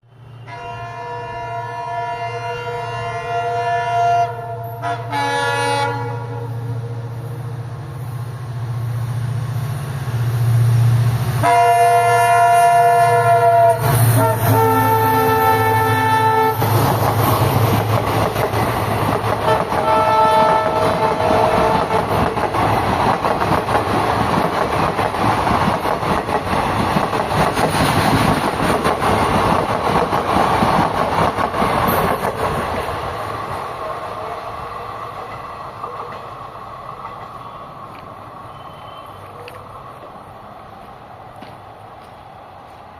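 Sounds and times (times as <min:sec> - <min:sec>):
diesel locomotive engine rumble: 0:00.0 - 0:42.9
multi-tone train horn blasts: 0:00.2 - 0:07.1, 0:11.4 - 0:16.9, 0:19.4 - 0:22.3
train wheel clatter: 0:16.6 - 0:33.6.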